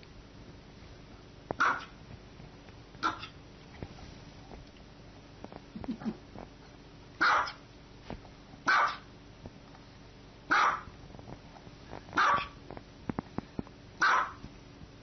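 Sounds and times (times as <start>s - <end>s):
small dog barking: 1.6s - 2.0s, 3.0s - 3.4s, 7.2s - 7.6s, 8.7s - 9.1s, 10.5s - 10.9s, 12.2s - 12.6s, 14.0s - 14.4s.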